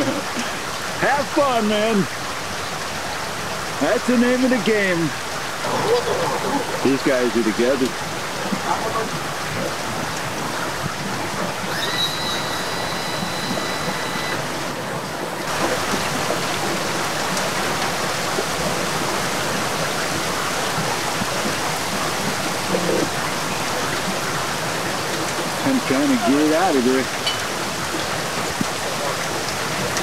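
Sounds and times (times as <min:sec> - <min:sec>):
heavy rain on water and pavement: 0:00.0 - 0:30.0
faint high steady tone: 0:11.7 - 0:14.8.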